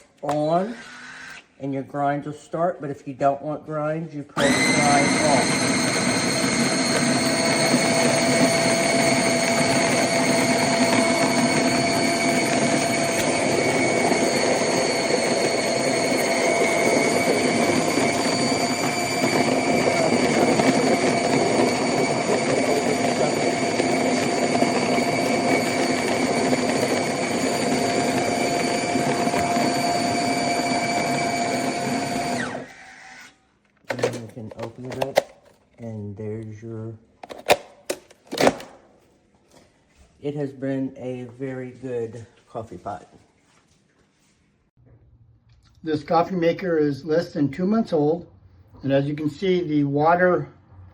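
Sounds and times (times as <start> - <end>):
coffee grinder grinding beans: 4.4 - 32.8.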